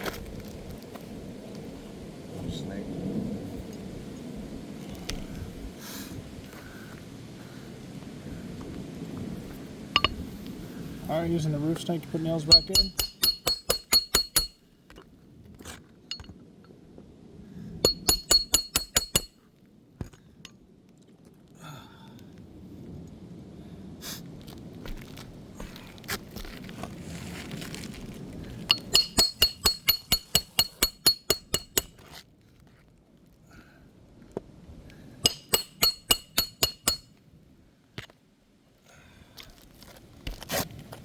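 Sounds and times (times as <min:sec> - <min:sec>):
hammer striking steel bar: 0:10.0 - 0:10.2, 0:12.5 - 0:14.6, 0:16.1 - 0:16.3, 0:17.8 - 0:19.3, 0:28.7 - 0:32.0, 0:35.3 - 0:37.1.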